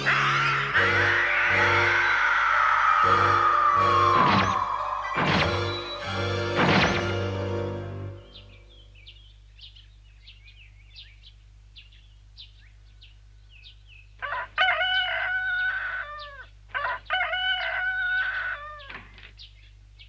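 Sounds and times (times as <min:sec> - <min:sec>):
rooster crowing: 0:00.0 - 0:06.2, 0:14.2 - 0:19.0
small birds chirping: 0:00.0 - 0:07.2, 0:08.0 - 0:20.0.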